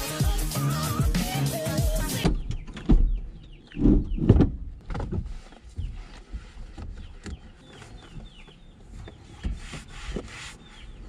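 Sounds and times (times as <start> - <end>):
towel wiping car window: 5.3 - 11.0.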